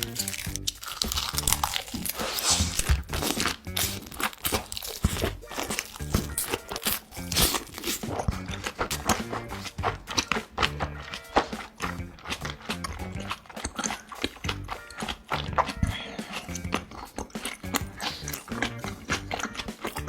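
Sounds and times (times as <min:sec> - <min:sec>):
crunchy chewing: 0:00.0 - 0:20.0
music with pulsing bass: 0:11.8 - 0:13.4.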